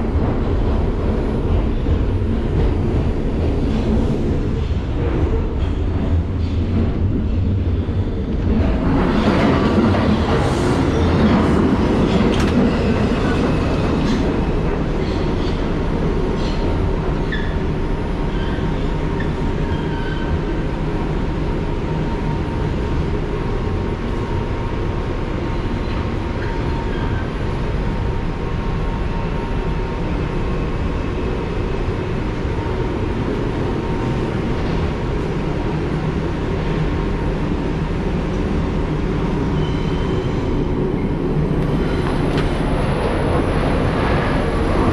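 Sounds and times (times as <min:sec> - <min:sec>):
subway train rumble: 0:00.0 - 0:44.9.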